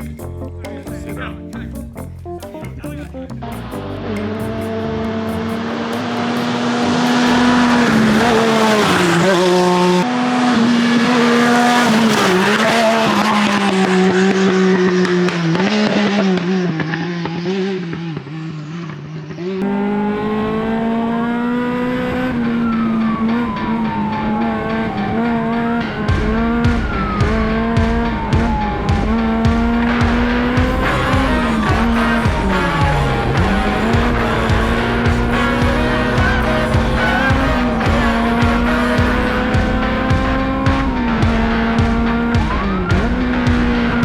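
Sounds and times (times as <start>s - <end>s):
race car engines revving: 3.4s - 44.0s
faint engines passing by: 30.6s - 41.0s.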